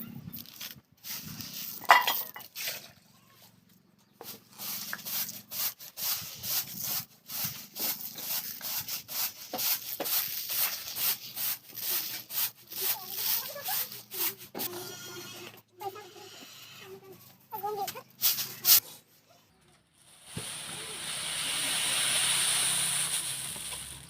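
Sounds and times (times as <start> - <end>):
rhythmic scraping by hand: 4.2 - 15.1.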